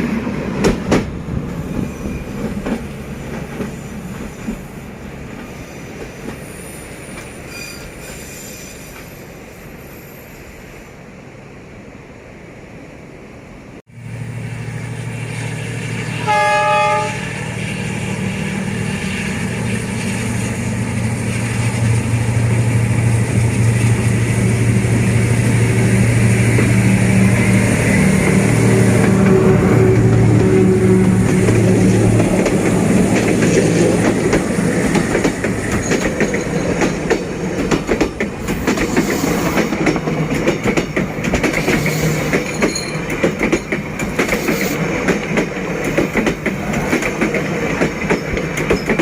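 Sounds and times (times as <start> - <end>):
train wheels rumbling on track: 0.0 - 49.0
locomotive horn: 16.1 - 17.8, 25.8 - 32.1
locomotive engine running: 17.1 - 49.0.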